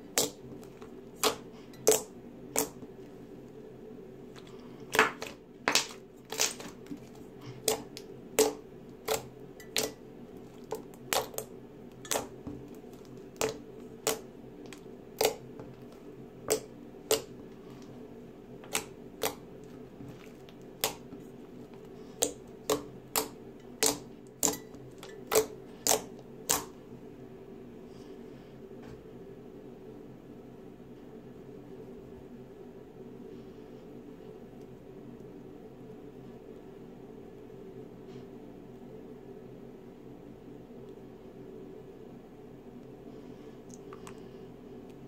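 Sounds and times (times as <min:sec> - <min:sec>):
slime popping: 0:04.4 - 0:17.4, 0:18.6 - 0:26.7.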